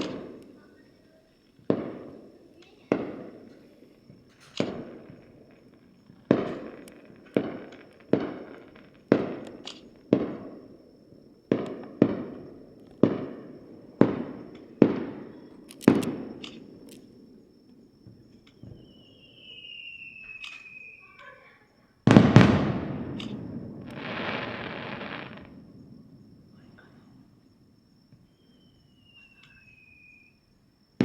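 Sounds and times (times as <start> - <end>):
fireworks booming: 0.0 - 0.9, 1.6 - 19.3, 22.0 - 27.4
faint falling whistle: 18.6 - 21.2, 28.1 - 30.5.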